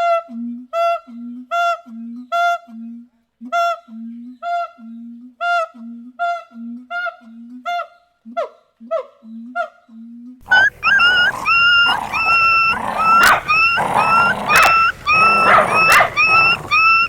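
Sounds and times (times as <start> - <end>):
animal honking call: 10.4 - 17.0.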